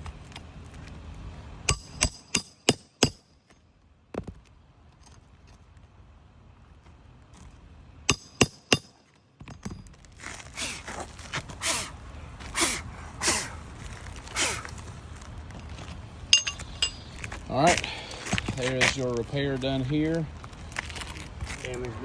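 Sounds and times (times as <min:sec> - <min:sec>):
hammer blows on shingle roof: 0:01.7 - 0:03.2, 0:08.1 - 0:09.8.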